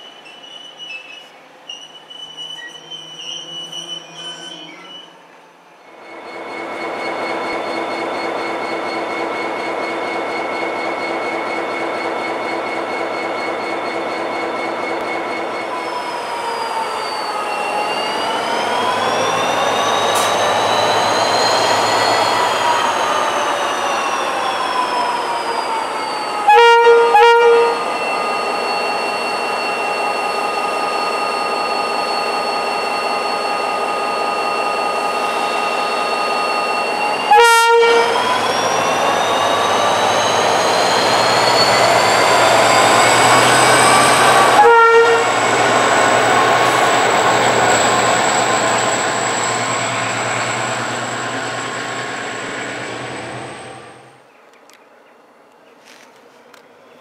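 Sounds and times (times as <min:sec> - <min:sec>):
diesel locomotive engine and turbo whine: 0:00.0 - 0:54.3
locomotive horn blasts: 0:26.5 - 0:28.0, 0:37.3 - 0:38.3, 0:44.4 - 0:45.6.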